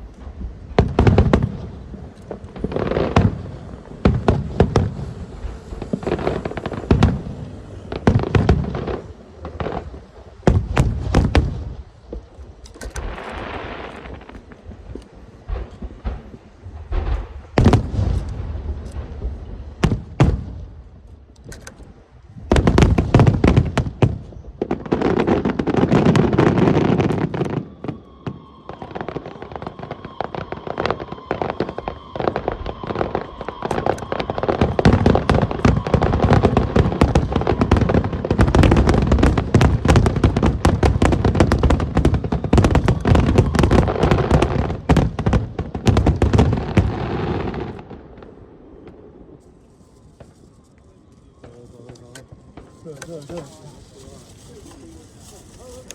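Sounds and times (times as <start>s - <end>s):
fireworks bangs and crackling: 0.0s - 55.9s
thin steady whistle: 26.7s - 38.2s, 41.3s - 44.9s, 49.4s - 55.9s.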